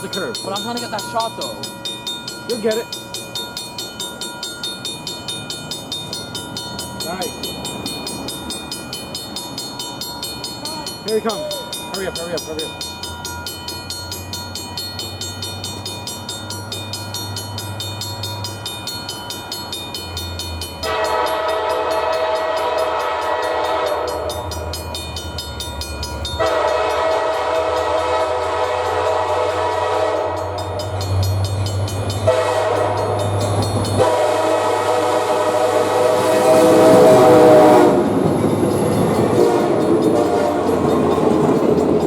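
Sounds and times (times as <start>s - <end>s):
diesel locomotive engine rumbling: 0.0s - 42.0s
multi-chime air horn blasts: 20.8s - 24.4s, 26.4s - 30.7s, 32.2s - 33.2s, 34.0s - 41.3s.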